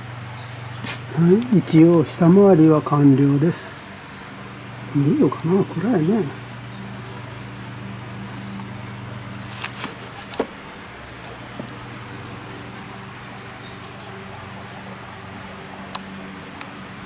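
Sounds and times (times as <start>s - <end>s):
bird chirps: 0.0s - 1.5s, 6.2s - 8.6s, 12.5s - 14.9s
steady low hum: 0.0s - 17.0s.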